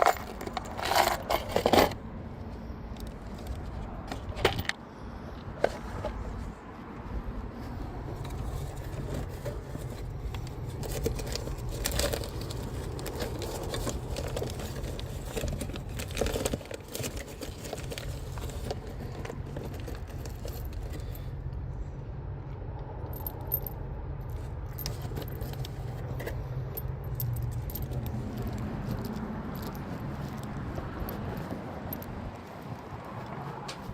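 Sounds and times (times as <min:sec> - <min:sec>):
small metal objects jingling: 0:00.0 - 0:02.0, 0:10.8 - 0:21.3, 0:23.1 - 0:25.9, 0:26.6 - 0:32.1.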